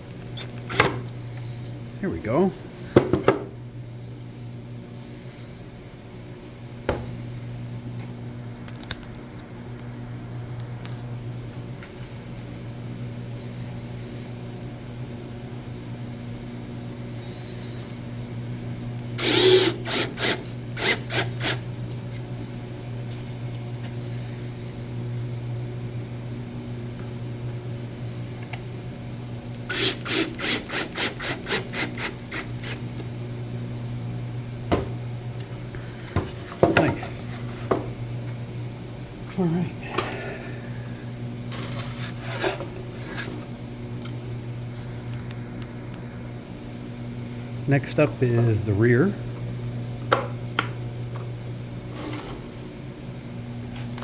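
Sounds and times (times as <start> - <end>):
steady low hum: 0.0 - 54.0
cordless drill driving screws: 19.2 - 21.6, 29.7 - 32.8.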